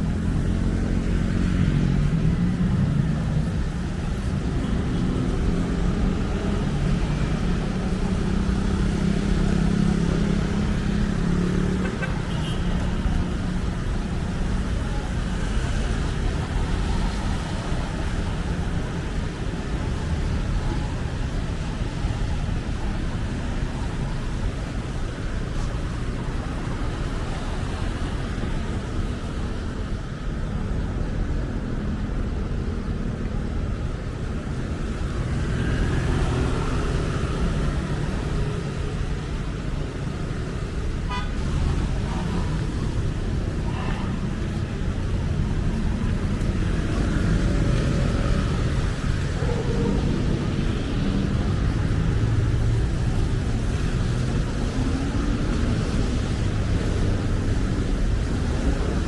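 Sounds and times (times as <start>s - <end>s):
city street traffic: 0.0s - 59.0s
car horn toot: 41.1s - 41.4s.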